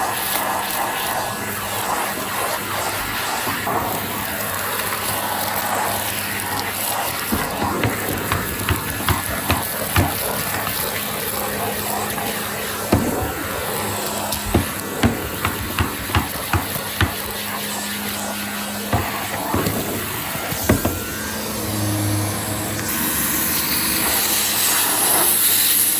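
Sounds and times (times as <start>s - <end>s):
vacuum cleaner running: 0.0s - 25.9s
sharp clicks and knocks: 7.3s - 10.9s, 12.9s - 17.6s, 18.9s - 21.2s.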